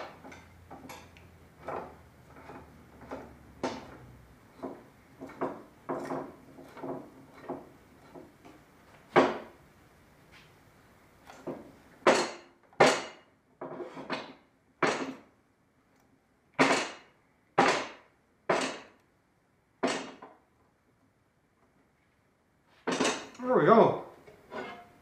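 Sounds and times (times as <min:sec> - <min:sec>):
sharp knocks on wood and clamps: 0:01.6 - 0:09.6, 0:11.3 - 0:15.3, 0:16.6 - 0:19.0, 0:19.8 - 0:20.4, 0:22.8 - 0:23.4.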